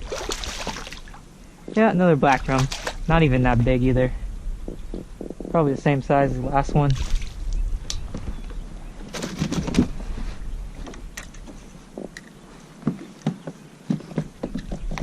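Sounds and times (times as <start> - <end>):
low rumble: 1.1 - 9.1.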